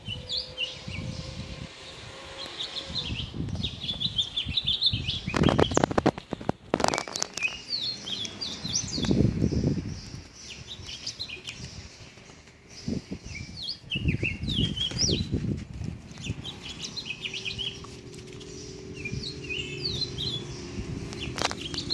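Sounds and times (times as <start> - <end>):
small birds chirping: 0.0 - 21.9
rustling and thumping near microphone: 14.6 - 16.4.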